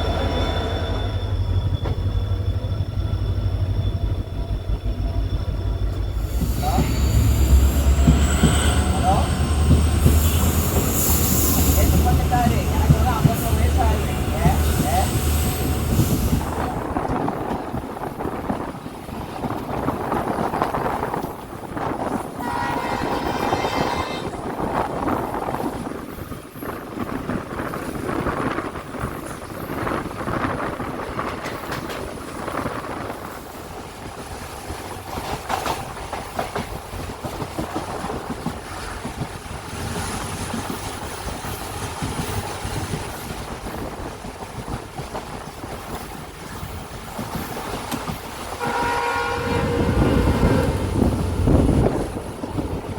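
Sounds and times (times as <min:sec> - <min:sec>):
train wheels rumbling on rails: 0:00.0 - 0:52.9
train horn: 0:22.4 - 0:24.4, 0:48.6 - 0:51.9.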